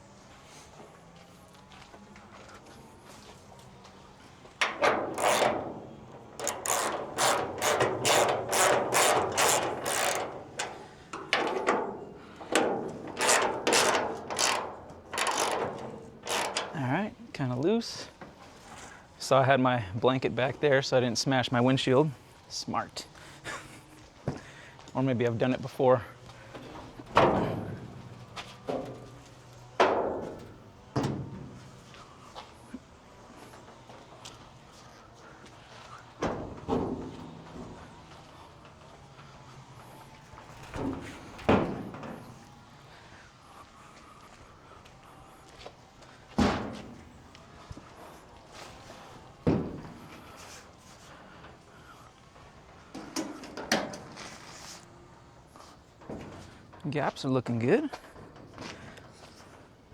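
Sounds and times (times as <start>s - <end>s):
hand ratchet clicking: 5.1s - 5.5s, 6.4s - 11.3s, 13.2s - 16.8s
metallic bangs of car panels: 26.6s - 31.9s, 46.4s - 47.2s, 49.4s - 50.2s.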